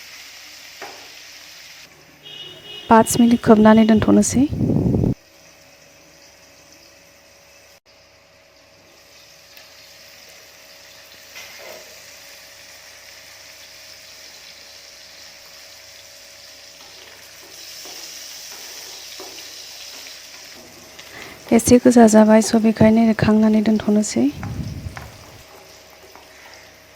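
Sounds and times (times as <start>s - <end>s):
mushrooms sizzling in a pan: 0.0s - 1.8s, 8.8s - 25.4s.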